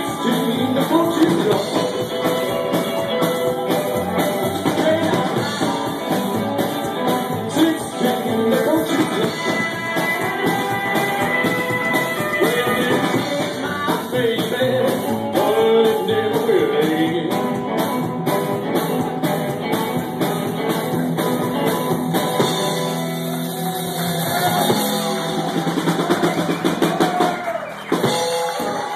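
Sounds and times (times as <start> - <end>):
person singing: 0.0 - 17.7
drum kit: 0.0 - 28.9
electric guitars: 0.0 - 28.9
upright bass: 0.0 - 28.9.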